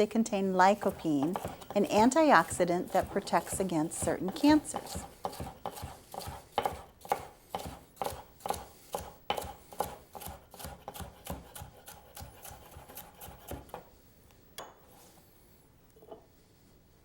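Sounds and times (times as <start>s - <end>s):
knife slicing on cutting board: 0.7s - 13.8s.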